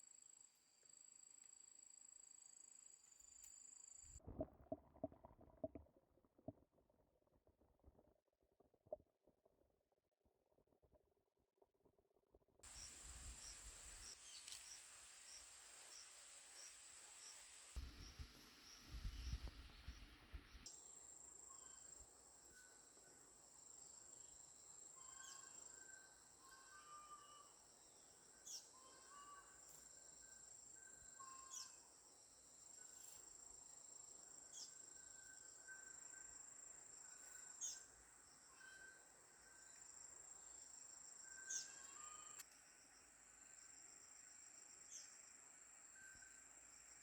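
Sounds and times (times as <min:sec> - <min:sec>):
insect chirping calls: 0:12.7 - 0:19.6, 0:20.7 - 0:47.0.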